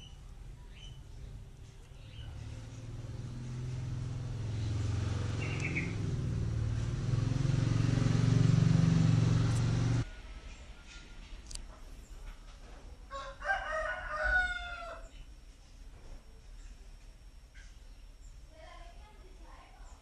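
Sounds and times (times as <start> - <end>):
bird chirping: 0.0 - 8.1
vehicle engine running: 0.0 - 10.0.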